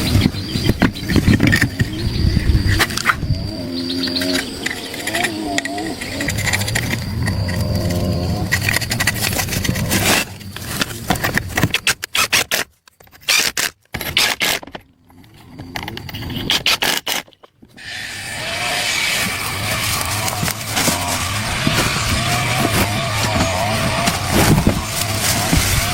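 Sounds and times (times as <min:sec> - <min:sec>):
rough rasping scrapes: 0:03.8 - 0:14.6, 0:17.8 - 0:25.9.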